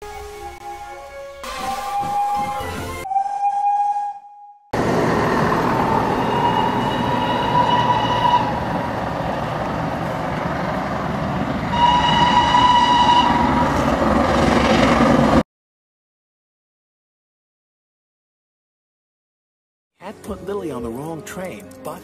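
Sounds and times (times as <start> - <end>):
steam whistle blowing: 0.0 - 4.8, 5.7 - 8.8, 11.7 - 13.8
steam locomotive chuffing: 4.8 - 15.4.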